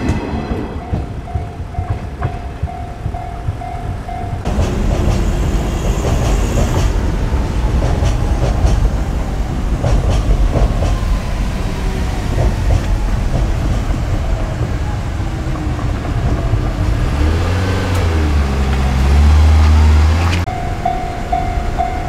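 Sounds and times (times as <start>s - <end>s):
steady high tone: 0.0s - 6.1s, 20.4s - 22.0s
electric train running past: 0.0s - 22.0s
wheels clacking over rail joints: 0.0s - 22.0s.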